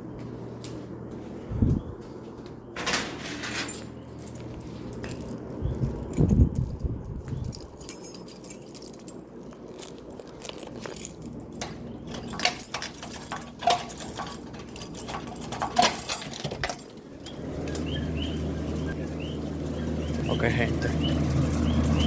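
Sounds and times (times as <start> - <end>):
small hard objects clinking: 3.4 - 17.1.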